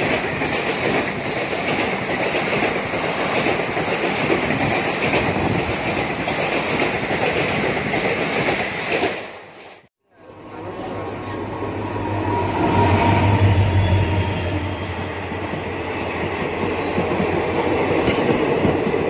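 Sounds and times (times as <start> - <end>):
train wheels clickety-clack on rails: 0.0 - 9.9, 15.3 - 19.0.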